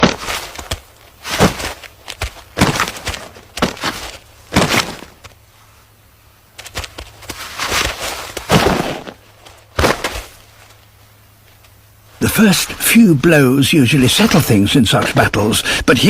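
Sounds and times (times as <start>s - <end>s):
heavy thuds of neck blows: 0.0s - 5.3s, 8.4s - 10.3s
scuffling: 0.0s - 5.8s, 6.5s - 11.8s.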